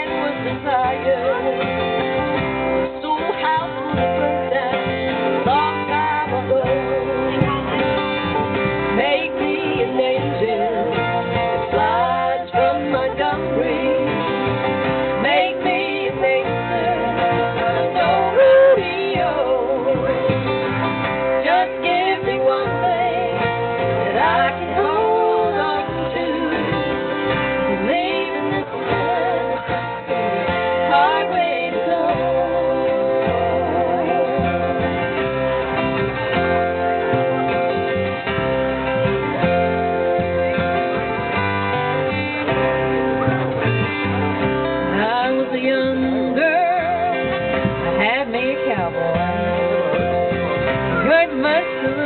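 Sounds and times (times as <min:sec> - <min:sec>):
person singing: 0:00.0 - 0:02.2, 0:02.8 - 0:07.9, 0:08.9 - 0:35.2, 0:44.9 - 0:52.0
acoustic guitar: 0:00.0 - 0:52.0
bass playing: 0:00.0 - 0:52.0.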